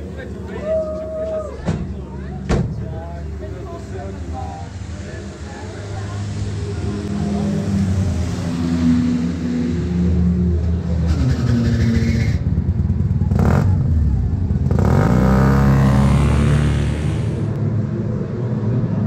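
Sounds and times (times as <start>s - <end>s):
car engine revving: 13.3s - 17.6s.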